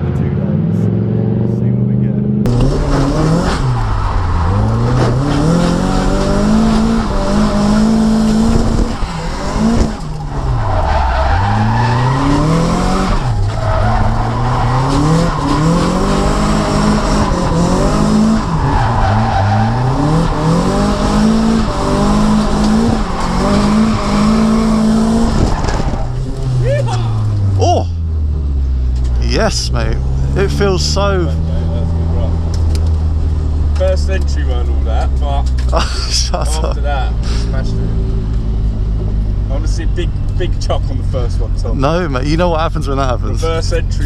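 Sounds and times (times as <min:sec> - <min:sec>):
car engine revving hard: 0:00.0 - 0:26.6
tyres squealing: 0:08.9 - 0:16.8.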